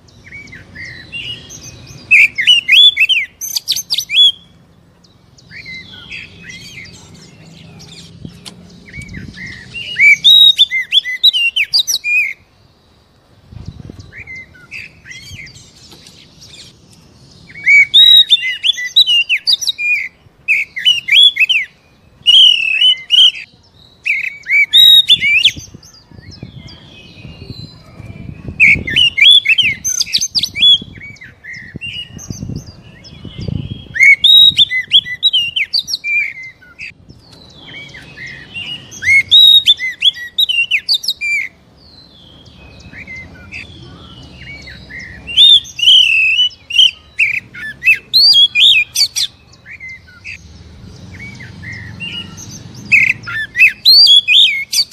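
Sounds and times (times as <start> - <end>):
bird chirping and whistling: 0.1 - 4.5, 5.4 - 8.2, 8.8 - 12.5, 17.4 - 50.4, 51.0 - 54.9.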